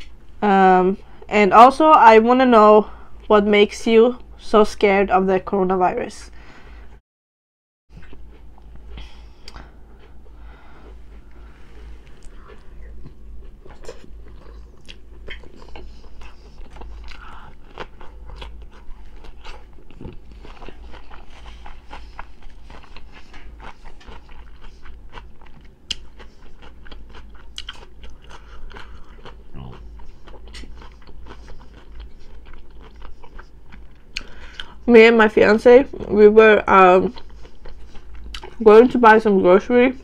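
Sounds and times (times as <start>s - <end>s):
person chewing food: 7.9s - 34.8s, 37.0s - 38.6s.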